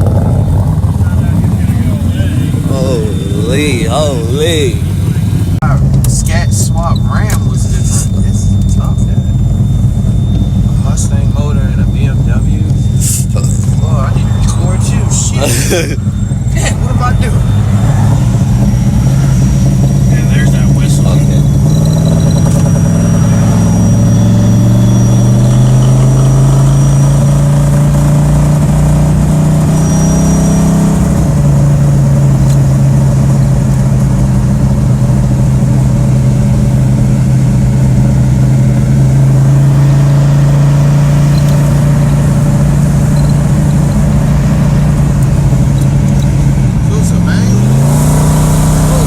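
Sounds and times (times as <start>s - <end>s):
car engine revving: 0.0s - 49.0s
thin high whistle: 29.7s - 30.9s.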